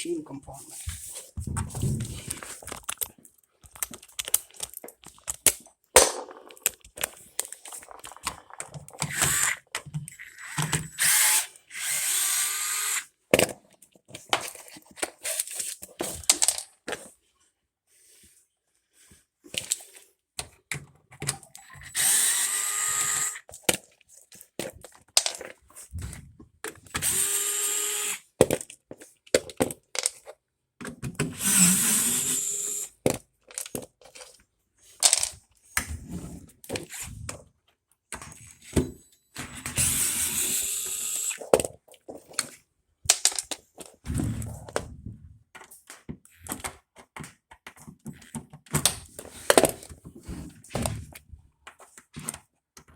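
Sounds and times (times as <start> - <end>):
power drill driving screws: 9.0 - 9.6, 10.2 - 13.1, 21.7 - 23.4, 26.9 - 28.2, 31.3 - 33.0, 39.4 - 41.4.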